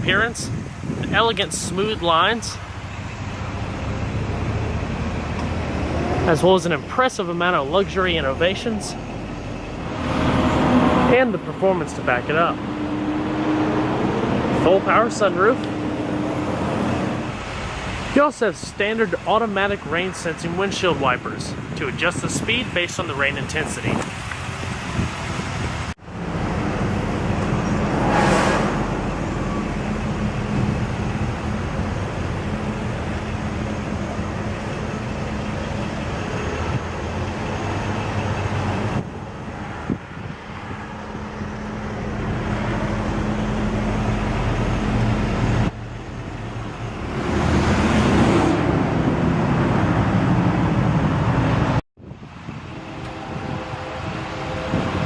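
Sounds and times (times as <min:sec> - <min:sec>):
car engine idling: 0:00.1 - 0:10.5, 0:28.7 - 0:39.6
rushing whoosh: 0:24.0 - 0:32.0, 0:46.4 - 0:55.0.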